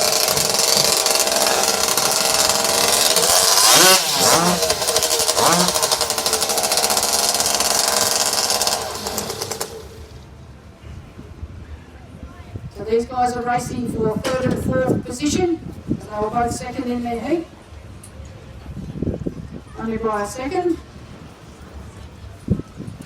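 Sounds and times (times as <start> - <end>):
chainsaws revving: 0.0 - 10.3.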